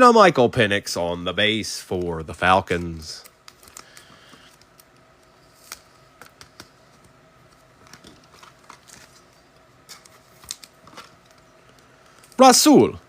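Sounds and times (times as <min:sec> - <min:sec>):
trading cards being handled: 0:01.9 - 0:12.5.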